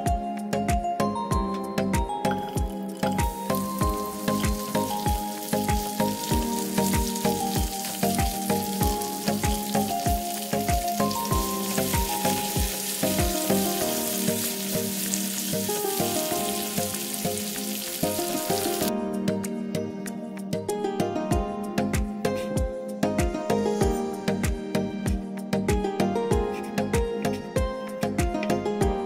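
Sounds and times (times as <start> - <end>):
background music with beat: 0.0 - 29.0
peppers sizzling in oil: 2.3 - 18.9.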